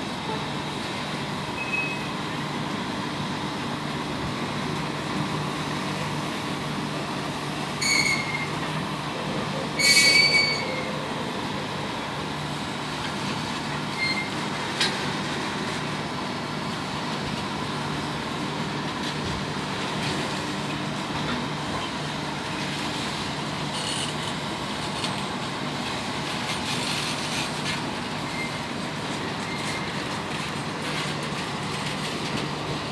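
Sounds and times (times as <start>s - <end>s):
train wheels rumbling on rail: 0.0s - 32.9s
high-pitched wheel squeal: 7.8s - 8.6s, 9.8s - 10.9s, 13.9s - 14.4s.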